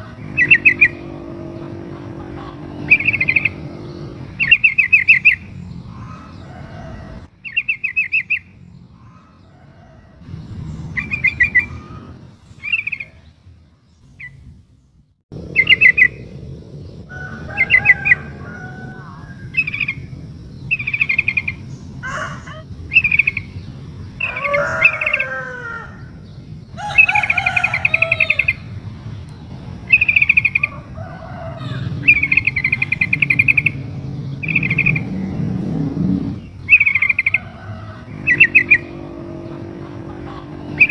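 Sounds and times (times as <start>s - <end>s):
bird chattering trills: 0.0s - 9.5s, 29.4s - 40.9s
bird warbling: 0.0s - 13.3s, 15.4s - 23.6s, 29.9s - 40.9s.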